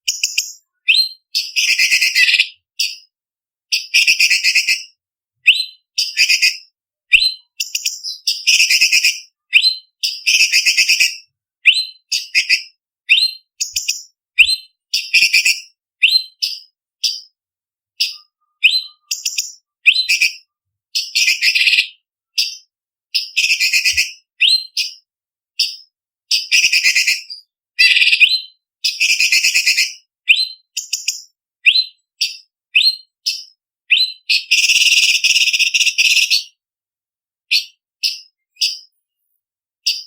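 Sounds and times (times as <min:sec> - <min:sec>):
bird whistled notes: 0:00.1 - 0:03.0, 0:05.5 - 0:11.1, 0:11.7 - 0:17.2, 0:18.0 - 0:20.4, 0:23.2 - 0:25.0, 0:26.3 - 0:36.4.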